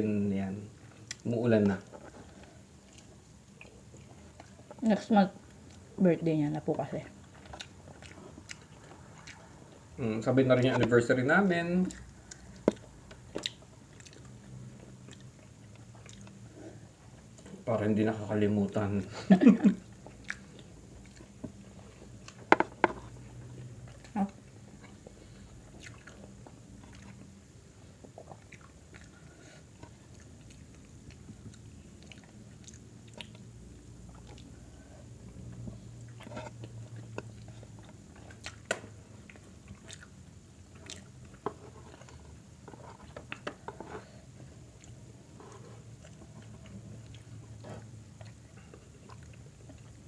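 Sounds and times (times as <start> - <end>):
faint low hum: 0.0 - 50.0
chewing and biting food: 0.9 - 4.8, 5.4 - 10.8, 11.8 - 17.6, 19.8 - 50.0.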